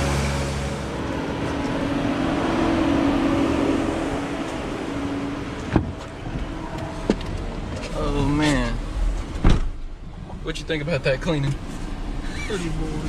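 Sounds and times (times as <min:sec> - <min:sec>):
vehicle engine running: 0:00.0 - 0:08.7.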